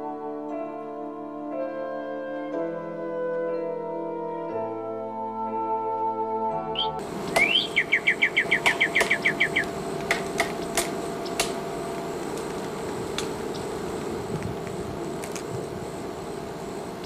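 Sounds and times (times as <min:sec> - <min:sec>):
bird calling: 0:06.8 - 0:17.0.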